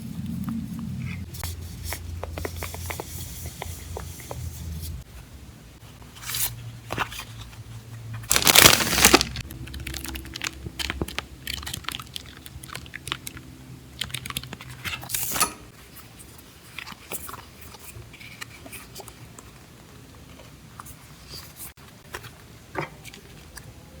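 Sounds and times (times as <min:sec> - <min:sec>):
plastic and paper crinkling: 0:08.2 - 0:13.4.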